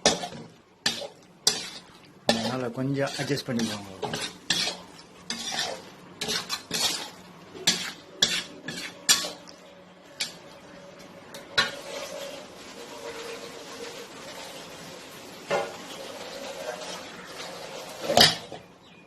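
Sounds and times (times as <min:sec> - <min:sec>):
spoon scraping and clinking in pan: 0:00.0 - 0:10.6, 0:11.6 - 0:12.2, 0:18.0 - 0:18.7
pan sizzling: 0:00.0 - 0:18.8.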